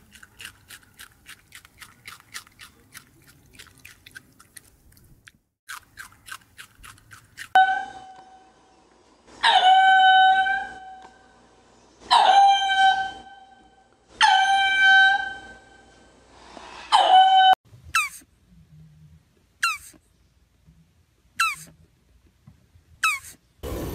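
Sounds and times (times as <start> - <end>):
rabbit chewing: 0.0 - 7.6
quick falling squeaks: 23.0 - 23.4.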